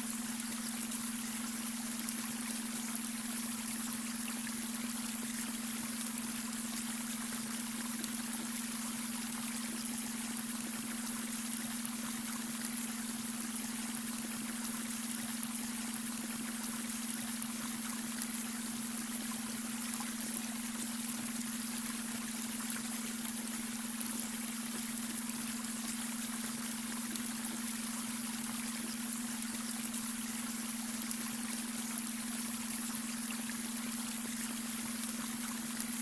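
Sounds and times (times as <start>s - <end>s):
brook water trickling: 0.0s - 36.0s.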